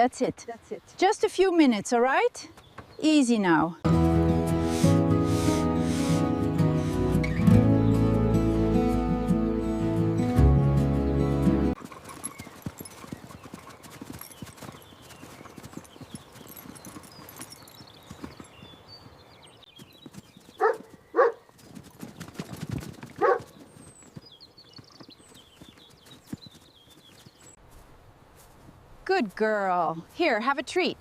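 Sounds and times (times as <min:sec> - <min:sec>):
horse hooves clip-clopping: 0:11.8 - 0:27.8.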